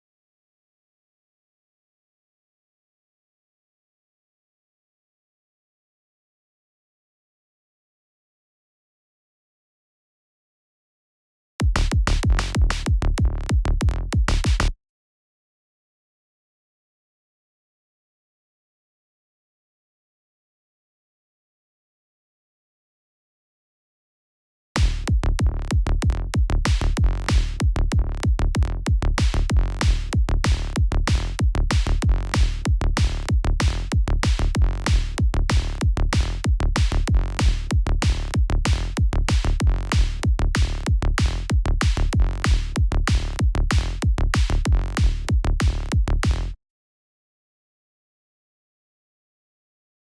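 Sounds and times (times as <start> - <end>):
electronic kick drum and synth bass: 11.6 - 14.8, 24.8 - 46.6.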